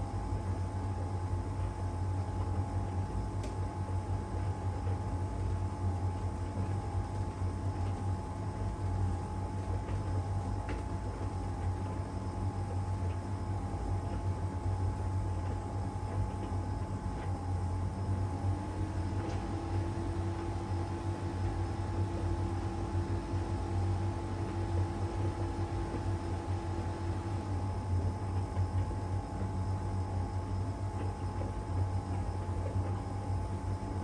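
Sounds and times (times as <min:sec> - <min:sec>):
tumble dryer humming: 0:17.9 - 0:28.8
low whine: 0:18.3 - 0:27.6.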